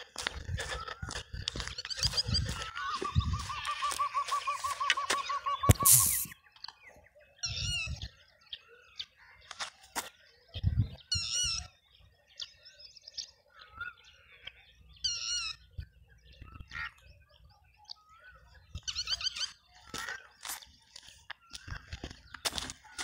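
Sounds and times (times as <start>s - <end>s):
soft bird chirps: 0.4s - 23.0s
loud wavering bird call: 1.8s - 6.4s.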